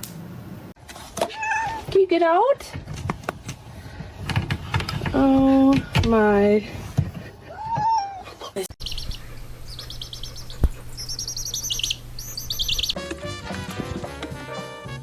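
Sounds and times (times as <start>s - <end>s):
small bird chirping: 8.8s - 13.0s
steady low hum: 8.8s - 13.0s
music: 13.0s - 15.0s.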